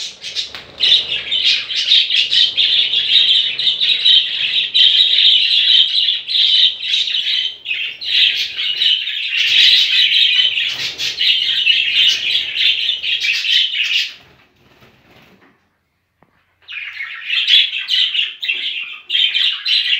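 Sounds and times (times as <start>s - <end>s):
budgerigars chattering and chirping: 0.0s - 14.3s.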